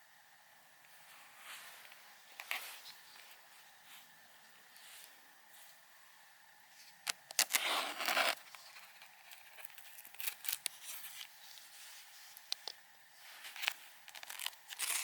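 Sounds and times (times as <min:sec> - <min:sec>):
light clicks and crinkles: 0:00.8 - 0:05.8, 0:06.8 - 0:15.0
rustling tearing handling noise: 0:07.0 - 0:11.7, 0:13.4 - 0:15.0.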